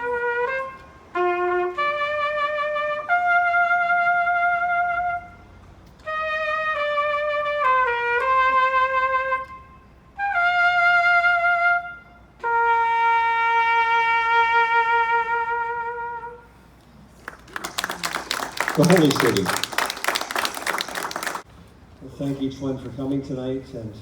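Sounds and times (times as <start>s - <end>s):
solo trumpet melody: 0.0s - 16.8s.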